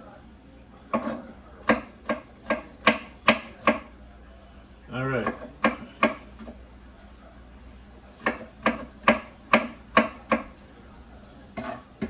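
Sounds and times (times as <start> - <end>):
knife chopping on cutting board: 0.9 - 3.9, 5.2 - 6.6, 8.2 - 10.5, 11.6 - 12.0.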